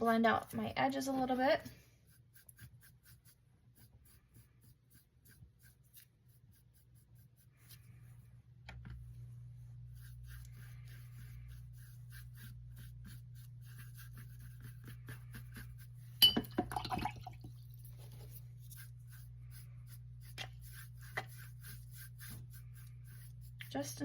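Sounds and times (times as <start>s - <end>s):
faint steady hum: 0.0s - 24.0s
paintbrush stroking on canvas: 0.6s - 8.4s, 9.0s - 16.2s, 17.7s - 24.0s.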